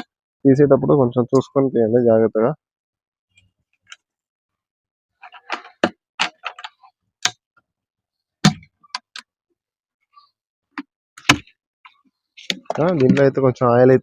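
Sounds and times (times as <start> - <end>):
plastic bucket clicking and knocking: 12.4 - 13.4.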